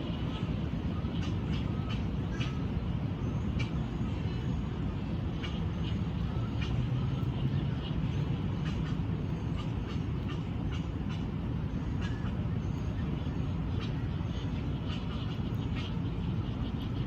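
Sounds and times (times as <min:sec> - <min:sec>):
low rumble of traffic: 0:00.0 - 0:17.0.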